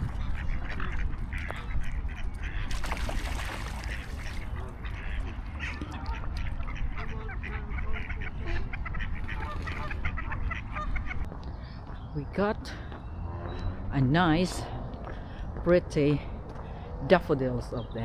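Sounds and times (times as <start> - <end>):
waterfowl calling: 0.0 - 11.3
wind rumble on microphone: 0.0 - 11.4.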